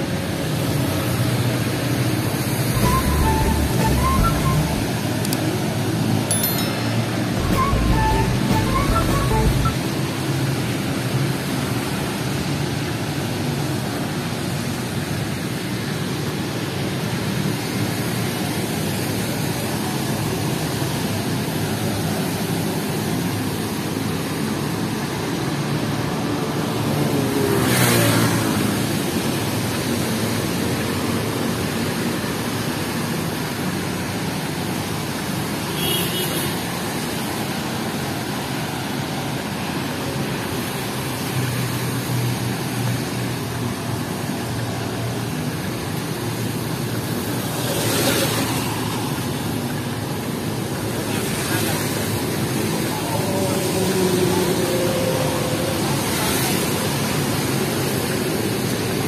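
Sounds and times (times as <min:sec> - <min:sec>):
vehicle passing on wet road: 0:36.7 - 0:59.0.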